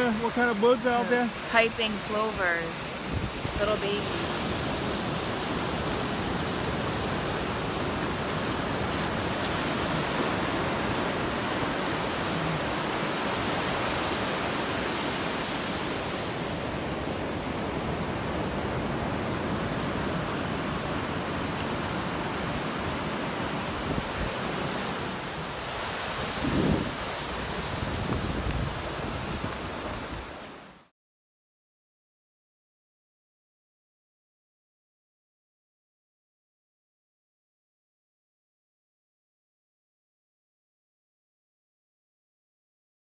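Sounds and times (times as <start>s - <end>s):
ocean surf on beach: 0.0s - 30.9s
wind on microphone: 2.8s - 30.8s.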